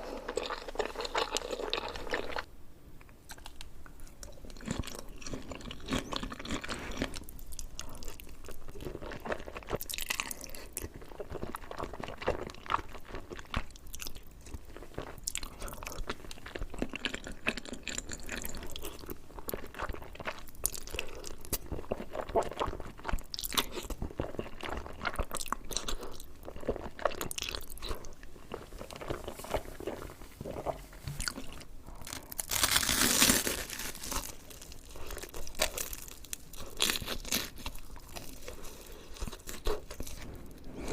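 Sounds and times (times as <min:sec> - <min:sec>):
close chewing with crunches: 0:00.0 - 0:02.5, 0:03.3 - 0:40.9
crunchy bite: 0:31.2 - 0:38.5.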